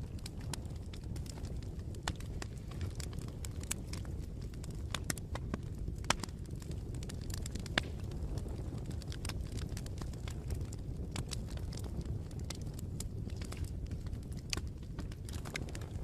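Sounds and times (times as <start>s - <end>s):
burning wood crackling and popping: 0.0s - 16.0s
low rumble of flames: 0.0s - 16.0s.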